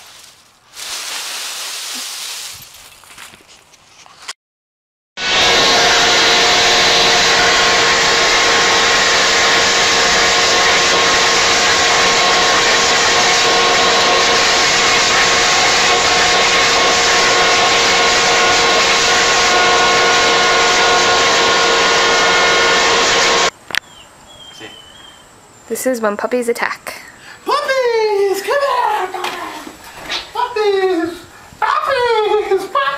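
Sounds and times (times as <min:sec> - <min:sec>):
leaf blower running: 0:05.2 - 0:23.5.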